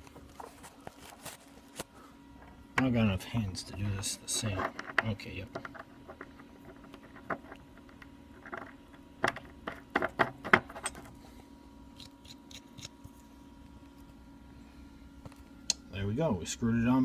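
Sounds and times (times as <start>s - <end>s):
small parts clicking and knocking: 3.8s - 11.1s.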